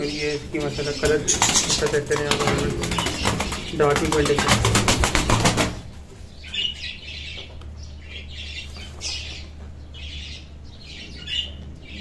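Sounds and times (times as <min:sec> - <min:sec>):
birds squawking: 0:00.0 - 0:12.0
steady low hum: 0:00.0 - 0:12.0.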